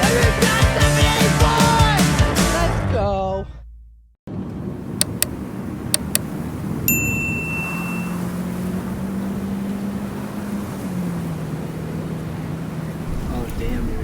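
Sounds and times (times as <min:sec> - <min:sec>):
vehicle engine running: 0:04.6 - 0:06.8
sharp clicks: 0:05.0 - 0:05.4, 0:06.0 - 0:06.3
ringing ding: 0:06.9 - 0:08.4.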